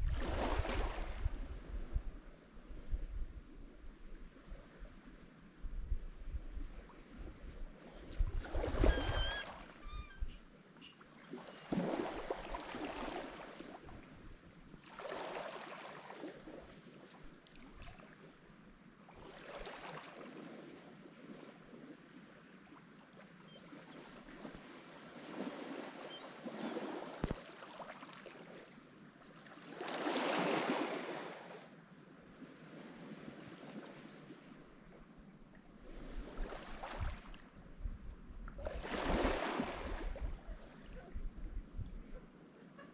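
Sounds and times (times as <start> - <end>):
waves breaking on shore: 0.0 - 2.0, 6.8 - 18.4, 19.1 - 34.9, 35.7 - 37.6, 38.6 - 41.1.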